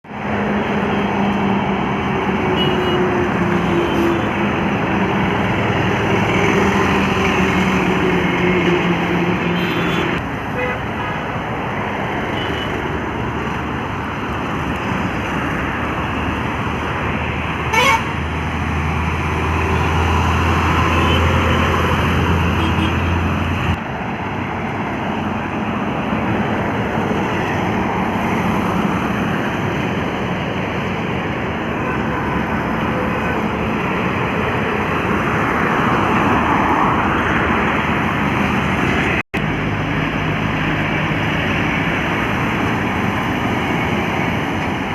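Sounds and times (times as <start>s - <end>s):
highway traffic rushing: 0.0s - 44.9s
horn toot: 17.7s - 18.2s.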